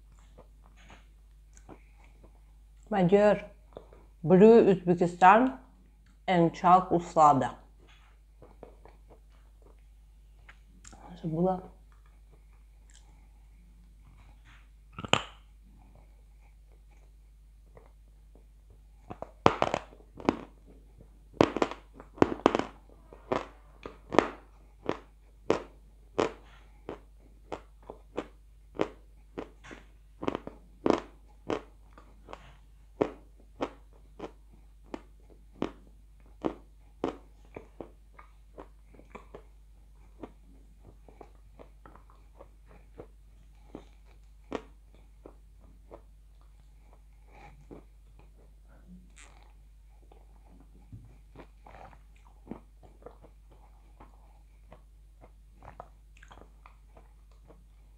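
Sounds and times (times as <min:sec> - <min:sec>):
crunchy chewing of clay: 0:11.9 - 0:13.3, 0:13.9 - 0:57.9.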